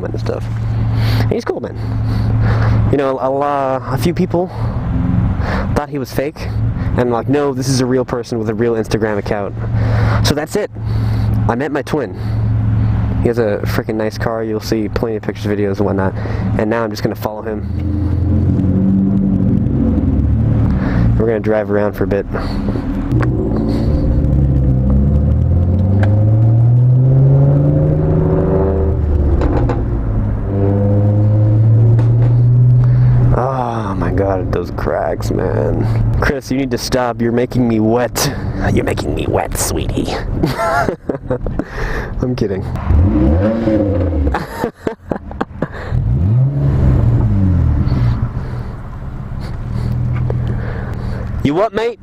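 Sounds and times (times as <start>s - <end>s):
vehicle engine accelerating: 14.6s - 51.9s
exhaust pops: 22.4s - 27.0s, 28.9s - 33.4s.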